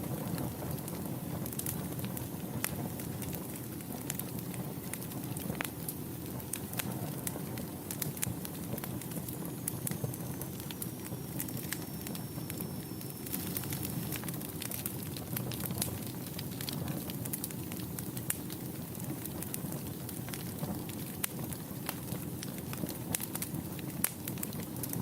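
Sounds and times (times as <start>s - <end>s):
fire crackling and popping: 0.0s - 25.0s
faint high whistle: 9.6s - 14.1s.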